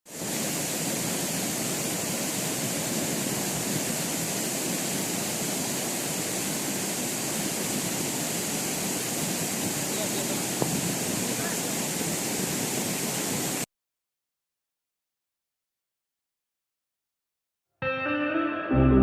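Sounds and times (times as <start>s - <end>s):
waterfall rushing: 0.1s - 13.6s.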